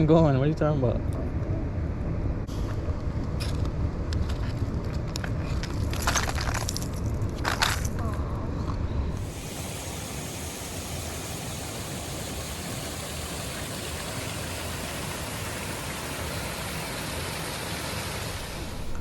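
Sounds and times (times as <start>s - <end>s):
creek water rushing: 9.2s - 19.0s.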